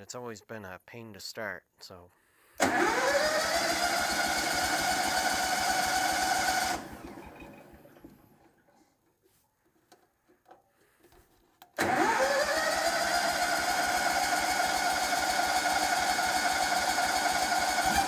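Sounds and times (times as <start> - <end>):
leaf blower engine starting: 2.6 - 8.4, 11.8 - 18.0.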